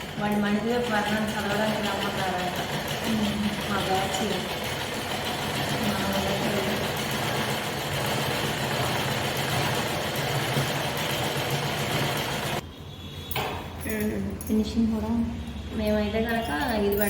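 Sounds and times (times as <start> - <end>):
sewing machine motor humming: 0.0 - 12.6.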